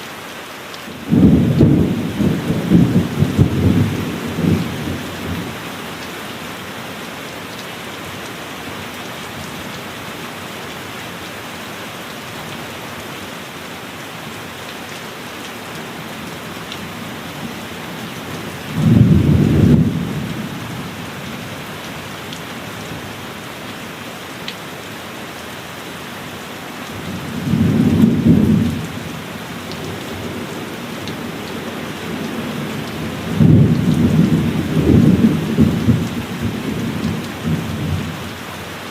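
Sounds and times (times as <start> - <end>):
heavy rain: 0.0 - 38.9
thunder rumbling: 1.0 - 5.6, 18.6 - 21.0, 27.0 - 38.1.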